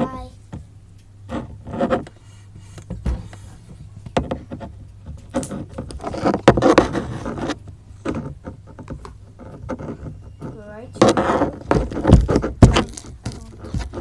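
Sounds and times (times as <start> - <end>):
rustling: 1.3 - 14.0
objects clicking and knocking: 4.0 - 14.0.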